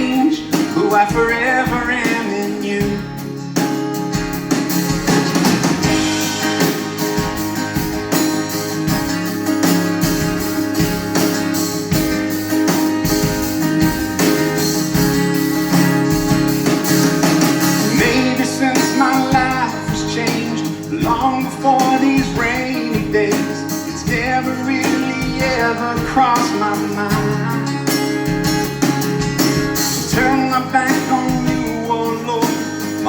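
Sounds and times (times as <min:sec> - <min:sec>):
person singing: 0:00.0 - 0:03.3, 0:17.8 - 0:27.9, 0:30.0 - 0:33.0
electric guitars: 0:00.0 - 0:33.0
live band playing: 0:00.0 - 0:33.0.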